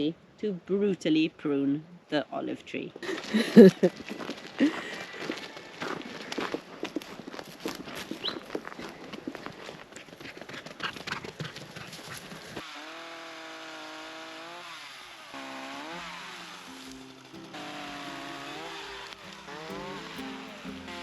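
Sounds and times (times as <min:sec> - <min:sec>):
chainsaw revving: 0:12.6 - 0:21.0.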